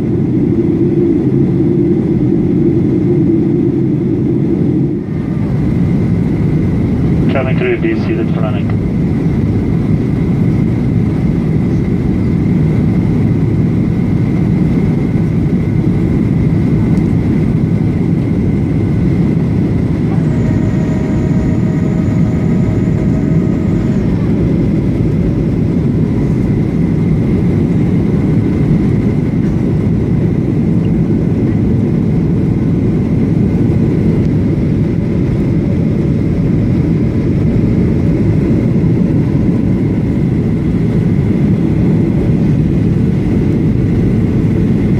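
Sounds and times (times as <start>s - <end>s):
higher multi-toned whine: 0.0s - 9.4s, 18.0s - 29.3s
aircraft cabin engine roar: 0.0s - 44.9s.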